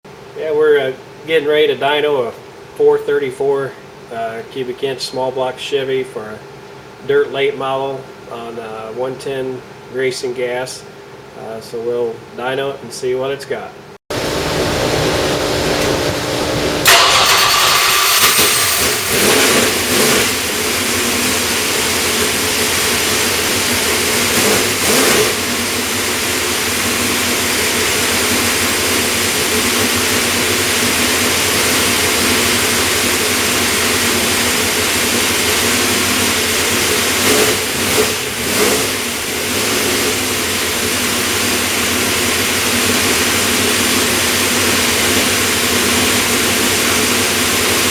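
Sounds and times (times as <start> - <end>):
racing engine idling with throttle blips: 14.1 - 47.9.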